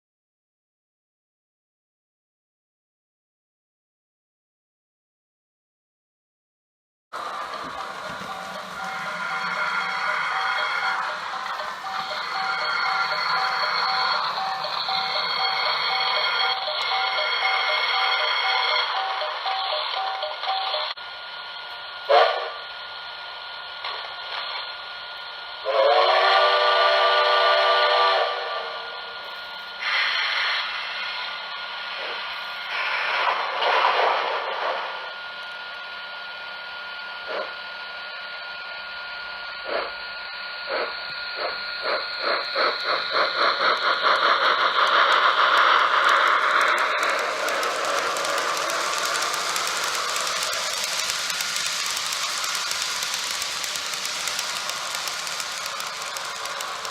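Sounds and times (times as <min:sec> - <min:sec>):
locomotive exhaust chuffs: 0:07.2 - 0:17.8, 0:40.7 - 0:56.9
steam hiss bursts: 0:07.2 - 0:19.8, 0:29.8 - 0:34.8, 0:40.7 - 0:56.9
long steam whistle: 0:22.1 - 0:22.6, 0:25.6 - 0:29.2
steady hiss: 0:42.2 - 0:56.9.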